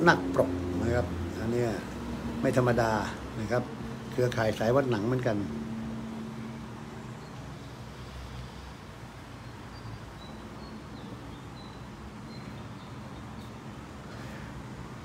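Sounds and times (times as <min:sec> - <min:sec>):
low hum and hiss: 0:00.0 - 0:15.0
bird chirping: 0:06.3 - 0:08.5, 0:09.4 - 0:14.4.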